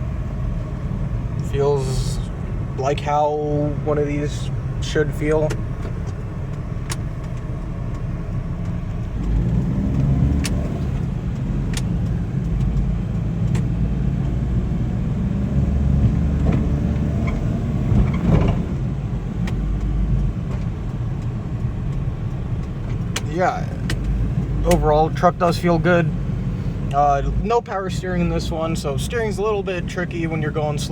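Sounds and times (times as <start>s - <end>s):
small truck engine driving: 0.0s - 30.9s
sharp clicks: 5.4s - 14.4s.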